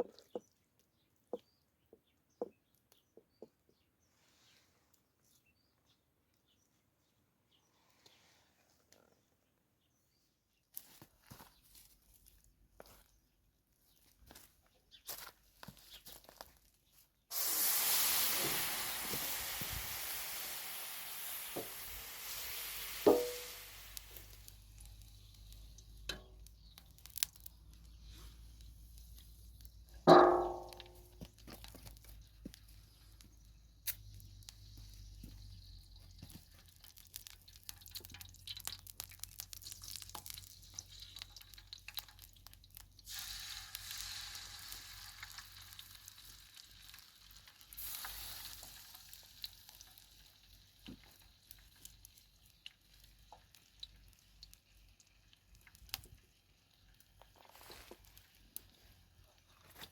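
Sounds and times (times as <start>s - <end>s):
food sizzling in a pan: 17.3s - 25.9s, 43.1s - 52.4s
loud ringing metal clang: 30.1s - 30.9s.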